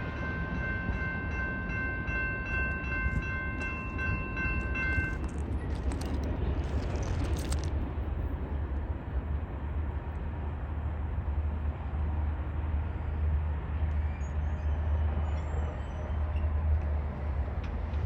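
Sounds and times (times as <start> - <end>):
freight train wheels rumbling on track: 0.0 - 18.0.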